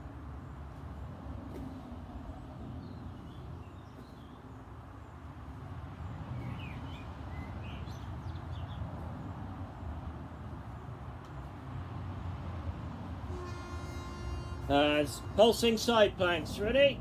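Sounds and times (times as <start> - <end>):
low outdoor rumble: 0.0 - 17.0
small birds chirping: 2.3 - 9.5.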